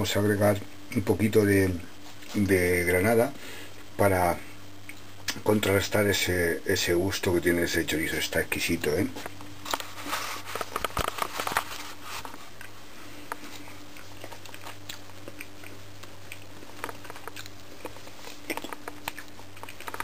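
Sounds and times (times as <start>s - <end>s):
person chewing with moist crunches: 9.2s - 20.0s.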